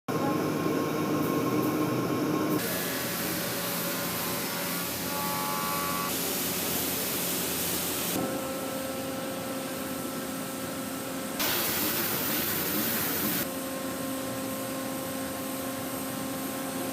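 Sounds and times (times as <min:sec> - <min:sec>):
woodworking machinery humming: 0:00.1 - 0:11.5
machine hiss: 0:02.6 - 0:08.2, 0:11.4 - 0:13.4.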